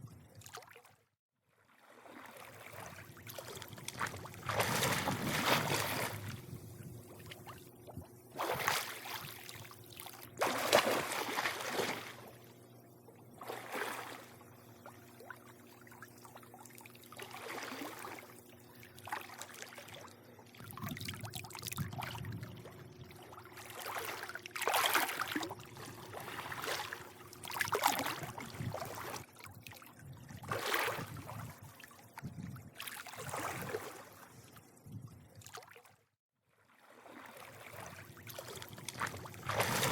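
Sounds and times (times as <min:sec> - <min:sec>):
pool water lapping: 0:00.0 - 0:39.9
faint low hum: 0:02.7 - 0:32.7.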